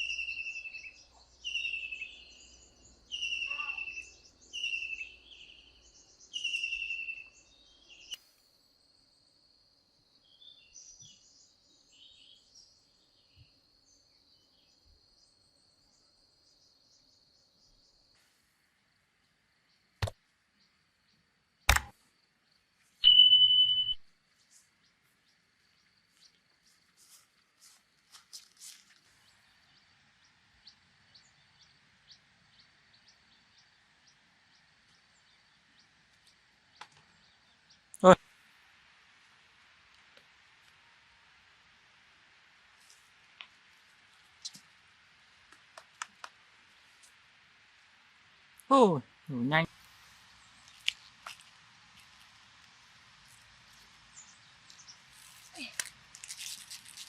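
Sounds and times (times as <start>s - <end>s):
faint bird chirps: 0.0s - 9.3s, 22.4s - 26.8s
faint high insect-like tone: 0.0s - 36.4s
sharp clicks: 21.7s - 21.9s.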